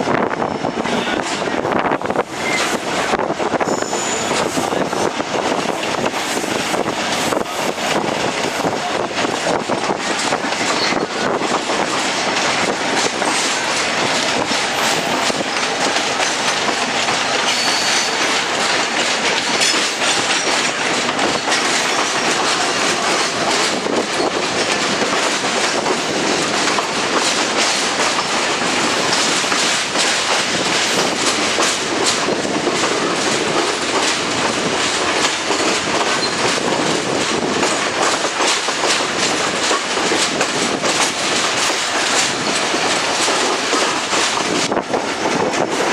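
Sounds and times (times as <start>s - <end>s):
train rushing rumble: 0.0s - 45.9s
wheels clicking over rail joints: 3.8s - 45.9s.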